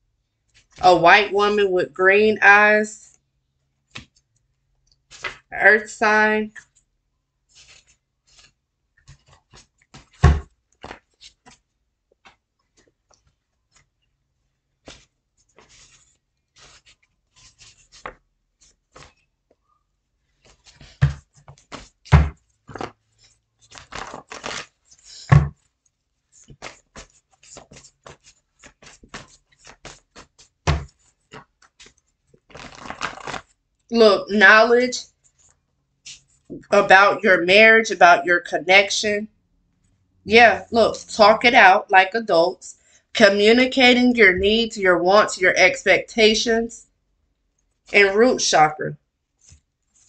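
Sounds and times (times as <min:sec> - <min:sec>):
cards shuffling: 0:05.1 - 0:05.5, 0:07.5 - 0:13.9, 0:14.8 - 0:19.3, 0:20.3 - 0:33.6.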